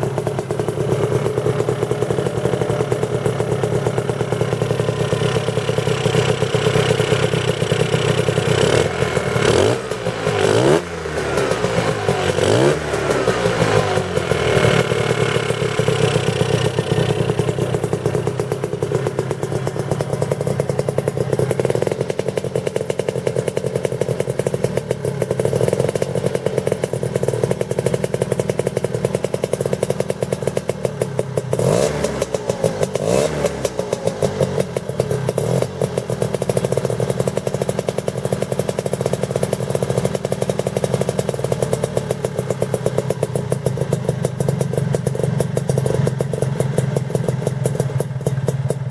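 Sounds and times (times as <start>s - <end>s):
scooter engine running: 0.0s - 48.9s.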